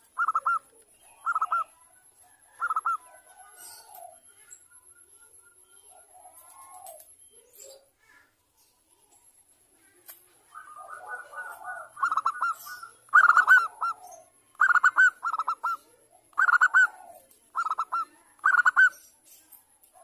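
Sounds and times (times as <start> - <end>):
dove cooing: 0.0 - 4.5, 5.8 - 7.9, 10.4 - 19.2.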